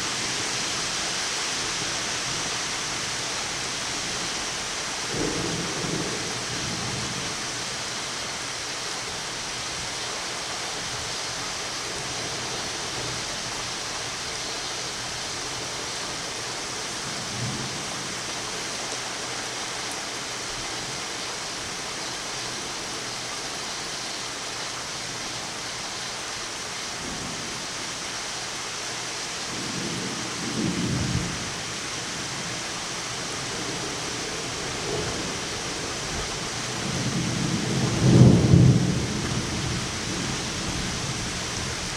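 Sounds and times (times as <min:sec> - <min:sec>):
heavy rain falling: 0:00.0 - 0:41.9
thunder rumbling: 0:33.5 - 0:41.9.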